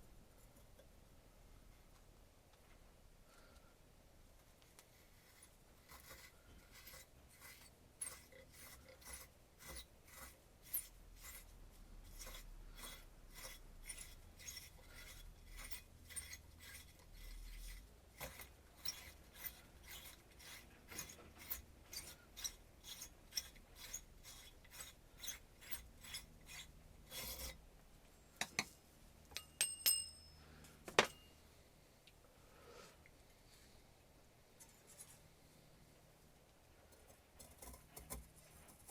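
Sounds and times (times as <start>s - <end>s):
hand tool scraping: 4.9s - 27.6s, 36.9s - 38.9s.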